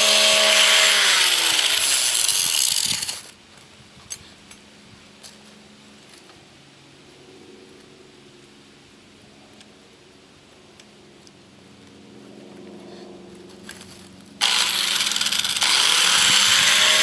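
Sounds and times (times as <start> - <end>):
angle grinder grinding steel: 0.0 - 3.3, 14.4 - 17.0.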